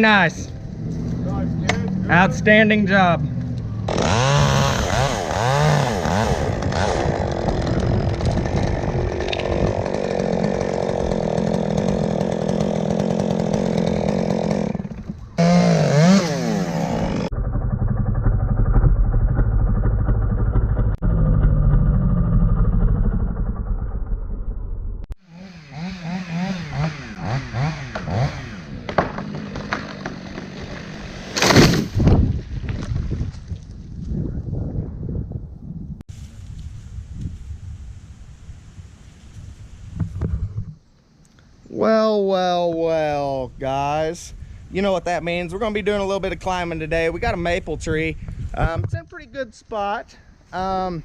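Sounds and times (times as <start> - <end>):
chainsaw revving while cutting: 3.9 - 17.3, 25.2 - 31.4.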